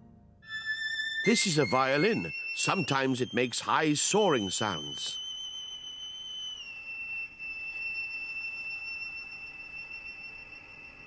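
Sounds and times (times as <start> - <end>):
violin holding high note: 0.4 - 5.2.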